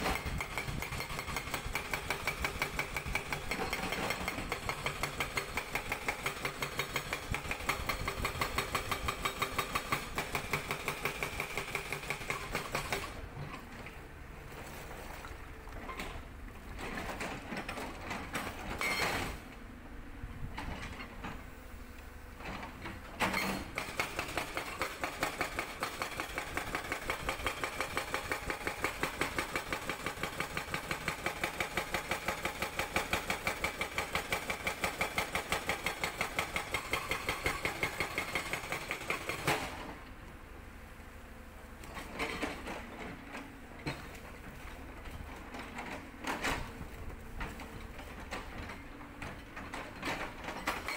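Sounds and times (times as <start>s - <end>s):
hydraulic rock breaker hammering rock: 0.0s - 14.0s, 22.4s - 40.0s, 41.8s - 50.9s
excavator engine and hydraulics: 0.0s - 50.9s.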